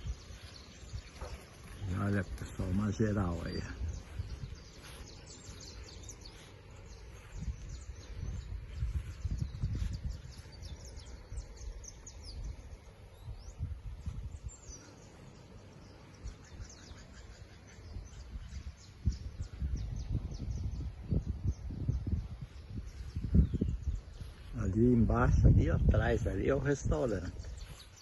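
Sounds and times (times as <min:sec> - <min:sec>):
birds chirping: 0:00.0 - 0:28.0
low uneven rumble: 0:00.0 - 0:28.0.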